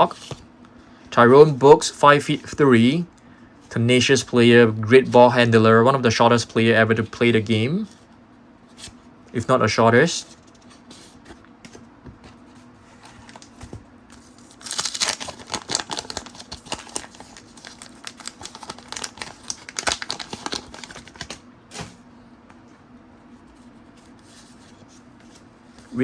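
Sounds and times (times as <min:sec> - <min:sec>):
paper wrapper tearing and crinkling: 0:13.2 - 0:13.6, 0:14.2 - 0:21.4.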